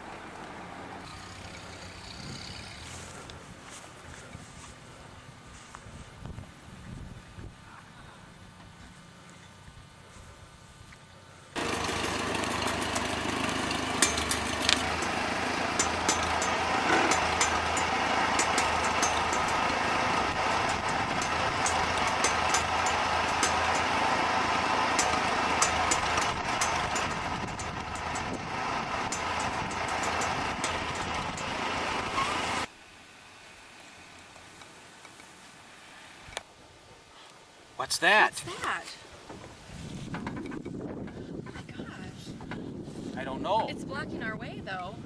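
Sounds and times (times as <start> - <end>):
vehicle engine running: 0.0 - 5.8, 11.5 - 32.7
sharp clicks and rattles: 11.6 - 32.7.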